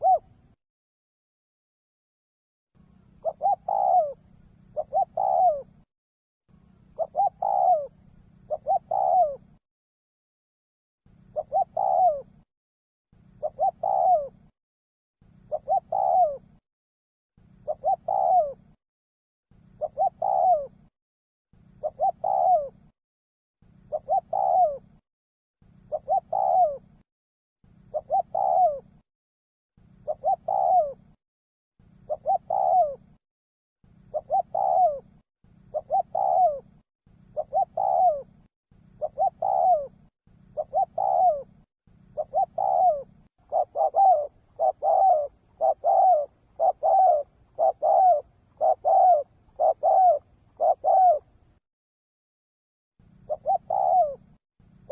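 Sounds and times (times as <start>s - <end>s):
dove cooing: 0.0s - 0.6s, 3.0s - 5.8s, 6.8s - 9.6s, 11.2s - 12.4s, 13.2s - 14.5s, 15.3s - 16.6s, 17.5s - 18.8s, 19.6s - 20.9s, 21.6s - 22.9s, 23.7s - 25.0s, 25.8s - 27.0s, 27.8s - 29.0s, 29.9s - 31.2s, 31.9s - 33.2s, 34.0s - 51.5s, 53.1s - 54.4s.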